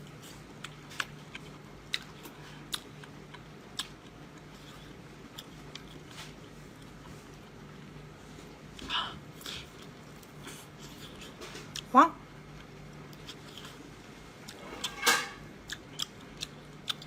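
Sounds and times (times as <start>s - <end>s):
faint low hum: 0.0s - 17.0s
person chewing and biting: 0.1s - 7.1s, 15.6s - 17.0s.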